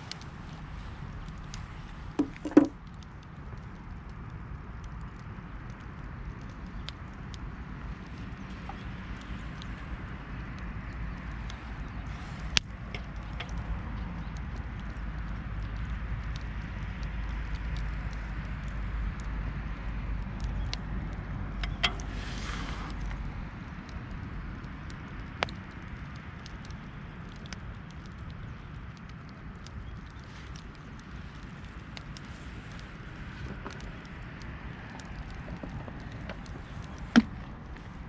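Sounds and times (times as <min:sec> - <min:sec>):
sharp crackles and pops: 0:00.0 - 0:38.0
steady hiss: 0:21.6 - 0:23.3.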